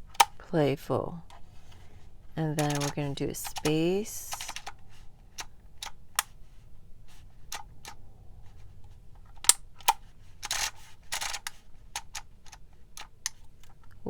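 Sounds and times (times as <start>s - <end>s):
label maker clicking: 2.6s - 4.8s.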